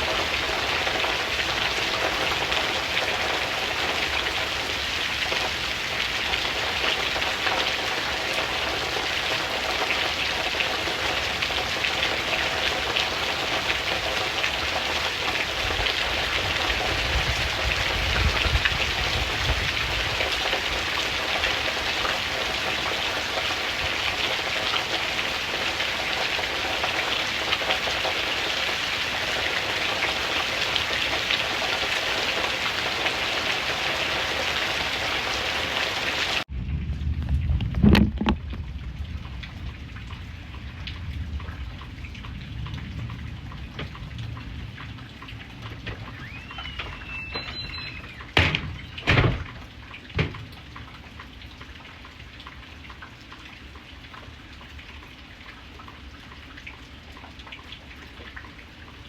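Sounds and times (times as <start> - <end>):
steady rain: 0.0 - 59.0
low rumble: 36.5 - 40.6.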